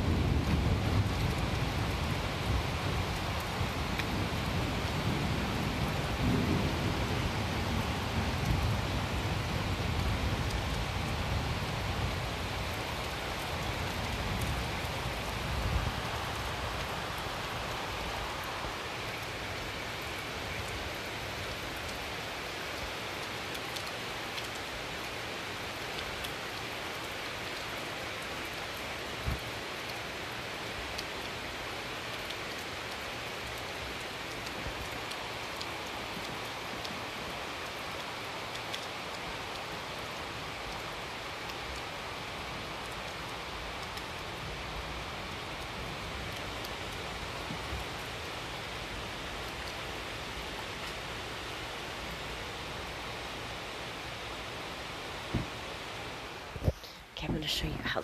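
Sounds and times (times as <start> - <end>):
steady rain falling: 0.0 - 58.0
thunder rumbling: 3.8 - 12.8.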